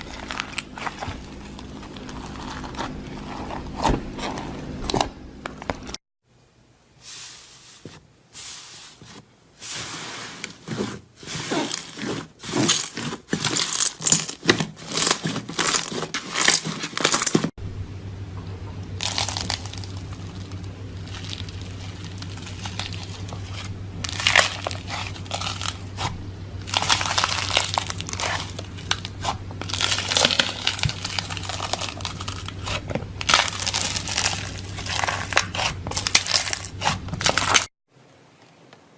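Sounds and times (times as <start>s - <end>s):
slime crackling and popping: 0.0s - 3.6s, 11.6s - 17.4s, 19.0s - 37.7s
steady low hum: 0.0s - 9.6s, 17.2s - 37.7s.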